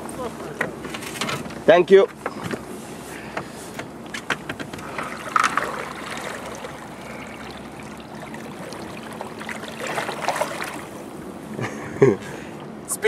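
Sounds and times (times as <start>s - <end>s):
river water running: 2.6s - 13.0s.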